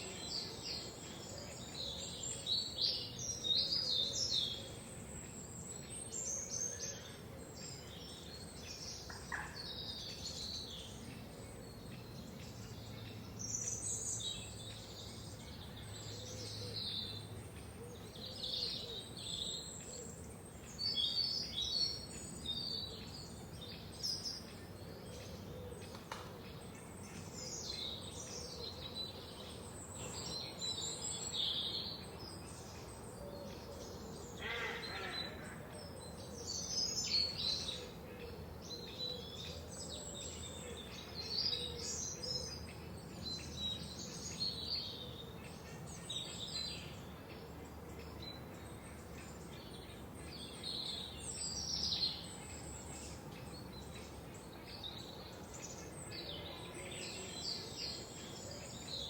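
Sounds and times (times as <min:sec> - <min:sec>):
songbirds chirping and singing: 0:00.0 - 0:59.0.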